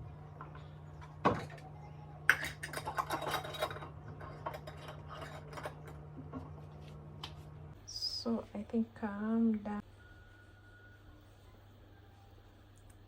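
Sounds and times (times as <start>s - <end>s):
utensils clicking against dishes: 2.3s - 6.1s.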